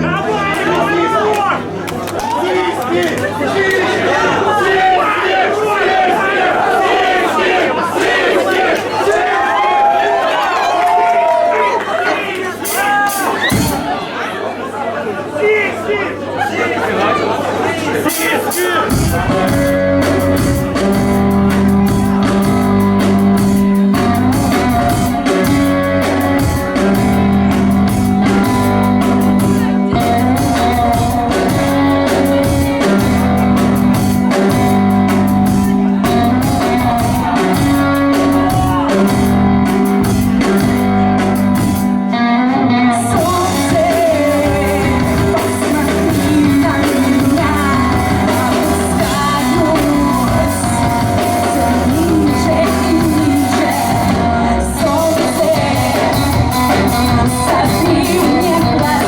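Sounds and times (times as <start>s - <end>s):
live rock band: 0.0s - 2.4s, 12.5s - 14.2s, 18.0s - 59.0s
singer's voice: 18.0s - 34.8s, 41.8s - 59.0s.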